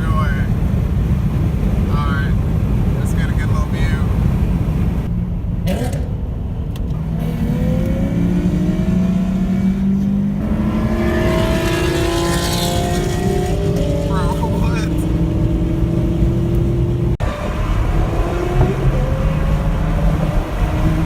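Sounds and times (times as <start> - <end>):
steady low rumble: 0.0 - 11.8
car engines accelerating hard: 0.0 - 21.0.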